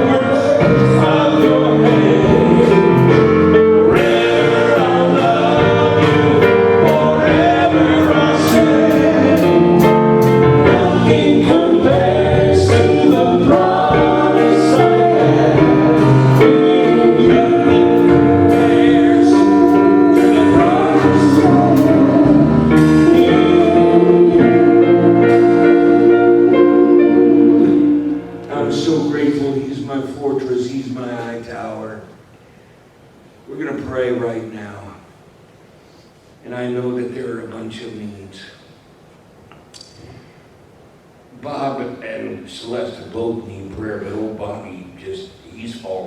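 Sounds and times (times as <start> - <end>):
instrumental accompaniment: 0.0 - 29.6
voices singing gospel song: 0.0 - 31.4.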